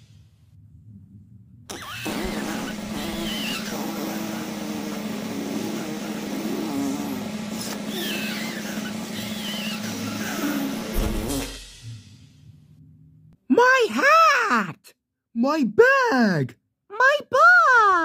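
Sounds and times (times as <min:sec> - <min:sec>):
squeaky rising and falling noises: 0:01.7 - 0:04.4, 0:07.6 - 0:11.5
steady motor hum: 0:01.7 - 0:11.4.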